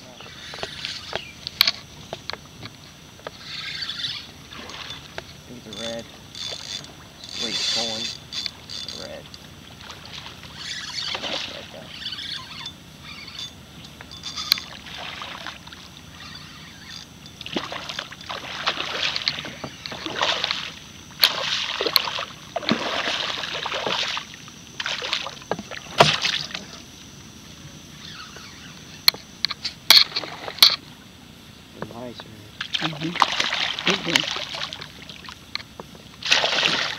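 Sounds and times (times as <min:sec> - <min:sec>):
water splashing around boat: 0:00.0 - 0:27.0, 0:29.9 - 0:31.0, 0:32.1 - 0:36.9
sharp knocks: 0:25.5 - 0:26.3.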